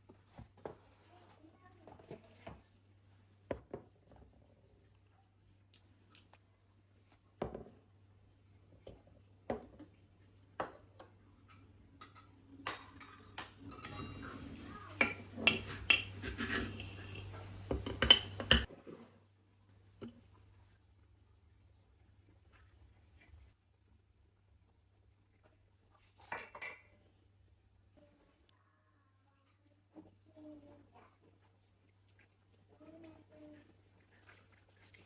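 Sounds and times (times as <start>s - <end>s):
utensils and dishes clattering: 11.5s - 19.1s.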